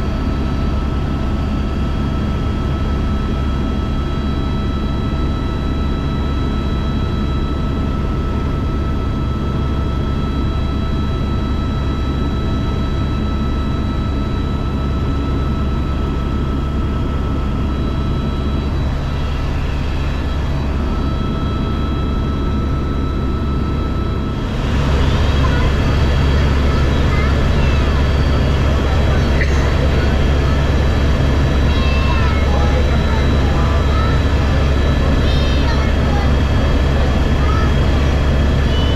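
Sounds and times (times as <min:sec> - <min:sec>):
helicopter rotor drone: 0:00.0 - 0:38.9
high turbine whine: 0:00.0 - 0:38.9.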